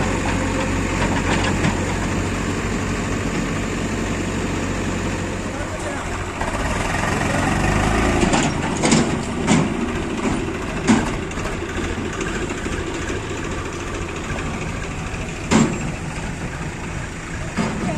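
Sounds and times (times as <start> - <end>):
diesel engine running at low revs: 0.0 - 17.9
sharp knocks: 8.2 - 11.2.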